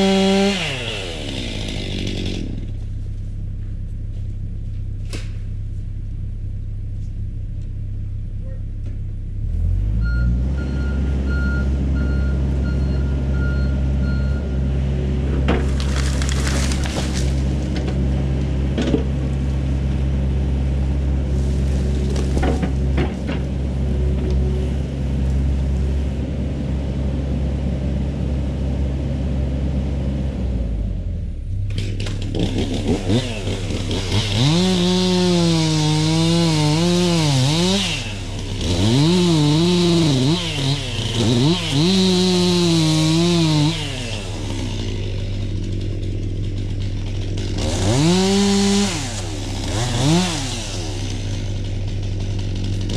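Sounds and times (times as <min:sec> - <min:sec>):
chainsaw cutting wood: 0:00.0 - 0:02.8, 0:15.6 - 0:17.6, 0:31.8 - 0:52.9
diesel excavator engine idling: 0:00.0 - 0:36.2, 0:37.8 - 0:42.1, 0:42.8 - 0:52.9.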